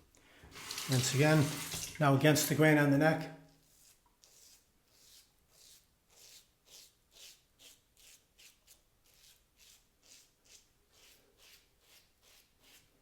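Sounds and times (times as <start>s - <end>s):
razor scraping stubble: 3.6s - 12.9s.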